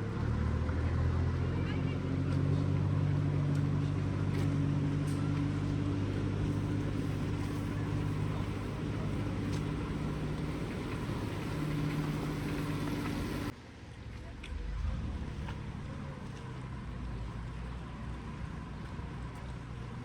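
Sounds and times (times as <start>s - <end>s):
vehicle engine idling: 0.0s - 13.6s
rain hissing: 6.5s - 13.5s.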